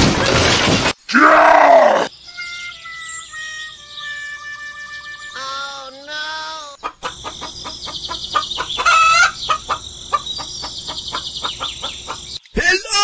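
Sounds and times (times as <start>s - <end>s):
chicken clucking: 5.4s - 12.4s.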